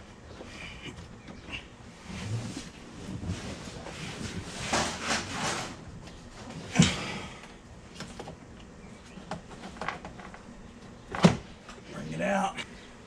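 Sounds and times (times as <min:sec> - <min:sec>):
plastic scraping and rustling: 0:02.1 - 0:06.7.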